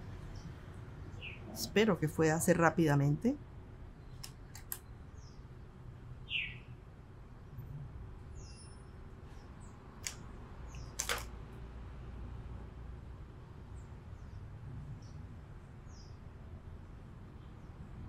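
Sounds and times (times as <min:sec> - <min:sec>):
hands rethreading sewing machine: 0:10.0 - 0:11.3.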